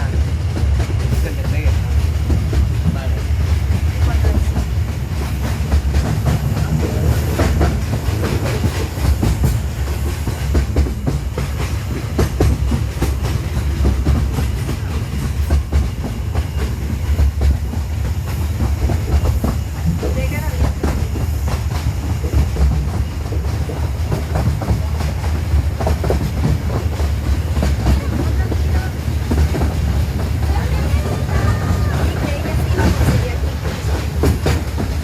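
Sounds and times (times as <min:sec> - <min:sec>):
mini train rumbling on track: 0:00.0 - 0:35.0
wheels clicking and rattling: 0:00.6 - 0:35.0.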